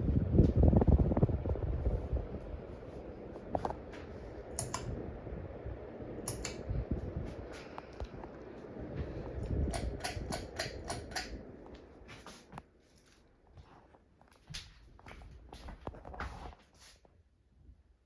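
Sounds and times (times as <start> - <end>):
ceiling fan rumbling: 0.0 - 18.0
sharp clicks: 4.6 - 4.9, 6.3 - 6.6, 9.7 - 11.4.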